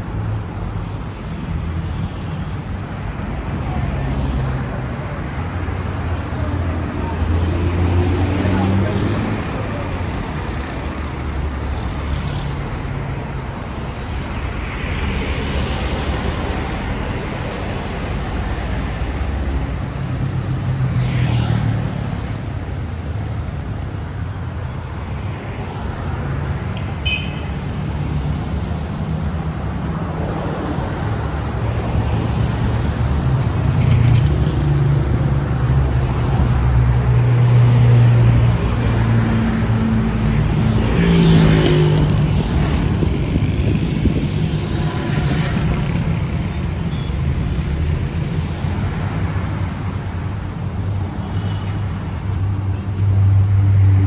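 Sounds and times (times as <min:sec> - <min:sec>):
cars passing by: 0:00.0 - 0:54.0
heavy engine hum: 0:30.9 - 0:50.9.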